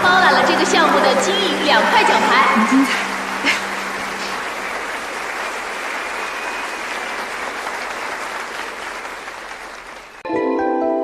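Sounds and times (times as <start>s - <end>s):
crowd applauding: 0.0s - 10.2s.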